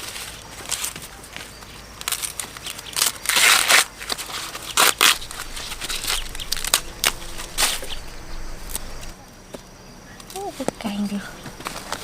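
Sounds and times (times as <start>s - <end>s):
dry material crunching: 0.0s - 9.2s, 10.2s - 12.0s
rustling burst: 4.7s - 9.2s.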